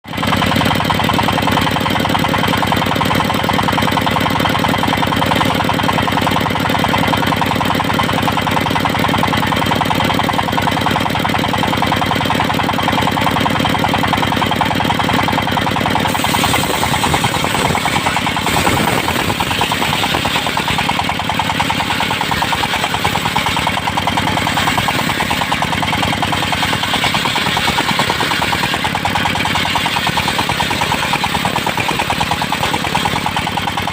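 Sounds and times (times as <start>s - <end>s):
circular sawmill engine running: 0.0s - 33.9s
saw hiss: 16.0s - 23.7s.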